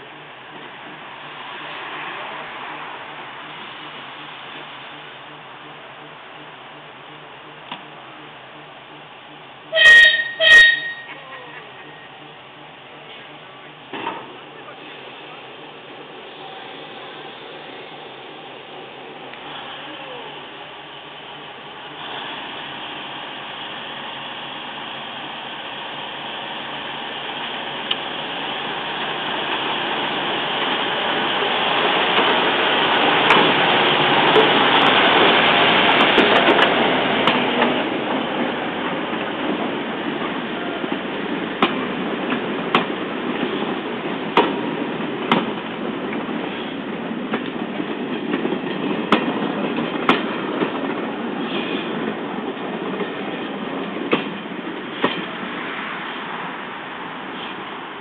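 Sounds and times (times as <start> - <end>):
diesel locomotive engine: 0.0 - 58.0
wheels clicking over rail joints: 30.6 - 55.5.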